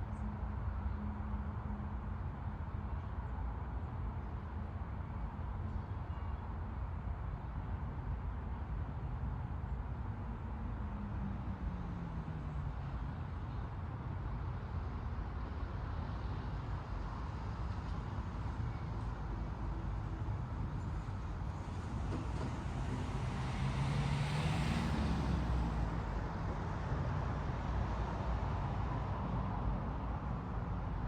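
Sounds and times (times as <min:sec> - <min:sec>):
road and outdoor rumble: 0:00.0 - 0:31.0
car passing by: 0:21.7 - 0:29.7.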